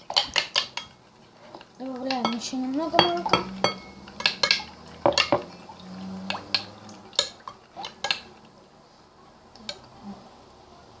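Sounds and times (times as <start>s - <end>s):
utensil clinking against bowl: 0.0s - 5.6s, 6.2s - 8.4s.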